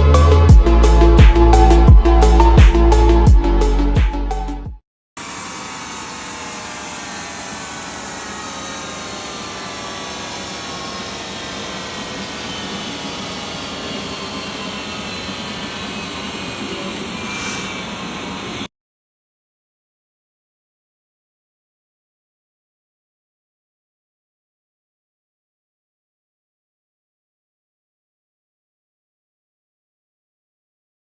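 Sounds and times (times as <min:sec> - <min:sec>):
electronic music: 0:00.0 - 0:04.8
whining tones falling in pitch: 0:05.2 - 0:17.0.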